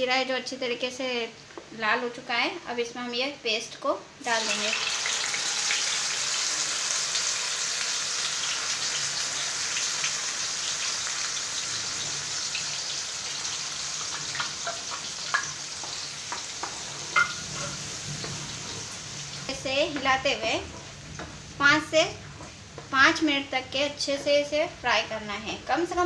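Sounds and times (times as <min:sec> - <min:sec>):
onion paste sizzling in oil: 0:04.2 - 0:26.0
spatula scraping and tapping pan: 0:14.1 - 0:18.9, 0:19.8 - 0:21.4, 0:22.2 - 0:23.0.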